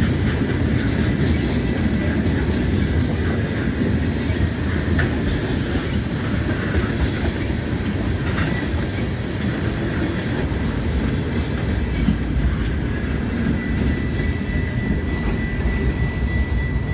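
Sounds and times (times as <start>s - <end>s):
train wheels rumbling on rails: 0.0s - 16.9s
faint high squeal: 11.9s - 16.9s.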